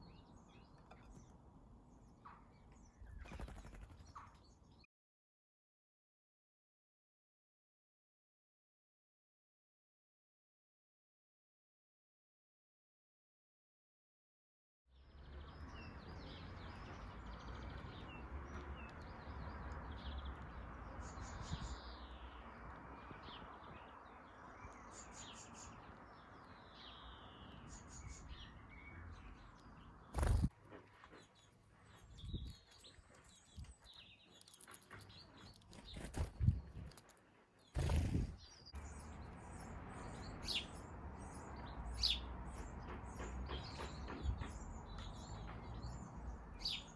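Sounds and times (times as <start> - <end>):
birds chirping: 0.0 - 4.9, 15.0 - 46.9.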